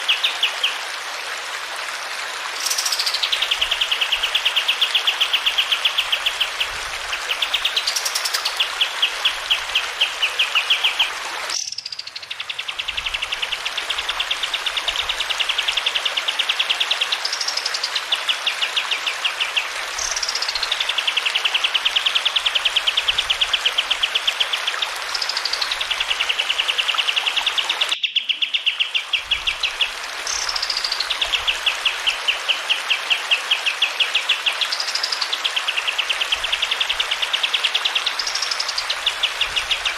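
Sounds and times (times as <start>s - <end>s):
running water: 0.0s - 39.9s
bird trilling song: 11.6s - 12.7s, 27.9s - 29.0s.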